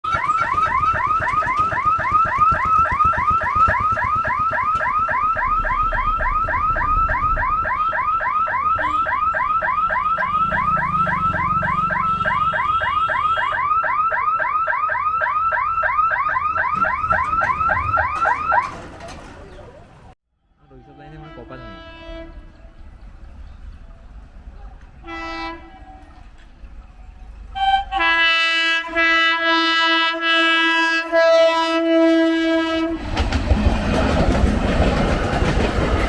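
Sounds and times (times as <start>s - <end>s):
level crossing warning siren chirping: 0.0s - 20.2s
low rumble: 5.0s - 8.0s.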